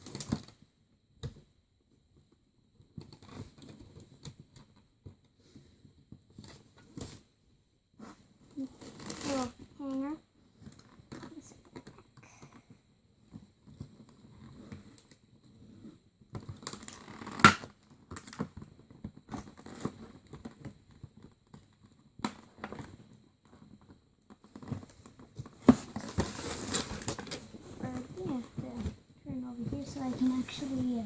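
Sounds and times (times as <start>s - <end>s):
packaging rustling and crinkling: 13.3s - 31.0s.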